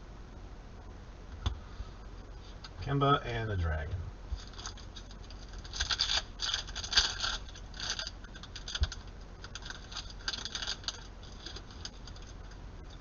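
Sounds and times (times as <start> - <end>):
trading cards clicking and rustling: 4.4 - 12.6.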